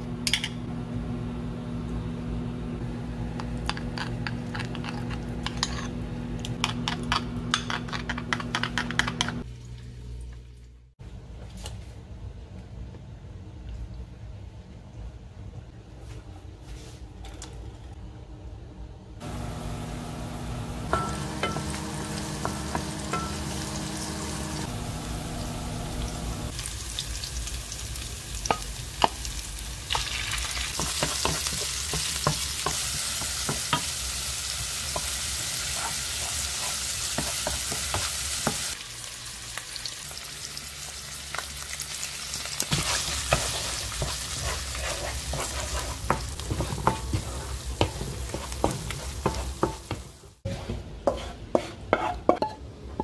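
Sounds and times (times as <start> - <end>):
oil sizzling in a wok: 19.2 - 50.5
spatula scraping and knocking pan: 20.8 - 24.7, 30.7 - 34.0, 34.9 - 38.7, 42.7 - 53.0.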